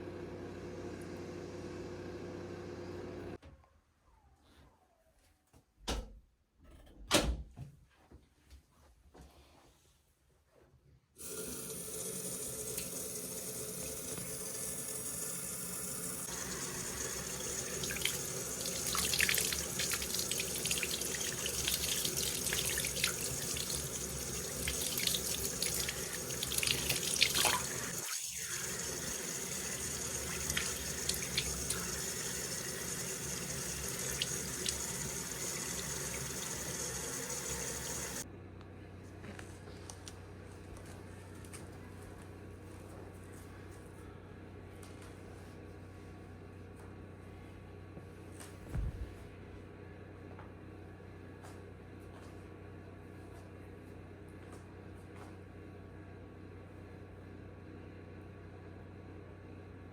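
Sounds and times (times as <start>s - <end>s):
tap water running into sink: 11.2s - 38.2s.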